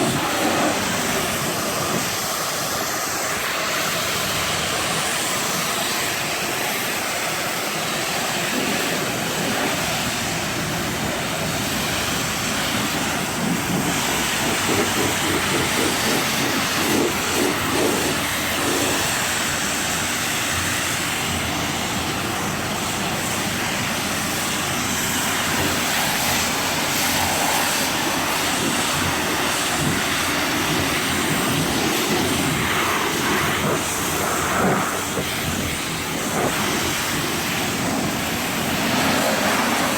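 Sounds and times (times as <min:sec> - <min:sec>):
pressure washer spraying water: 0:00.0 - 0:39.9.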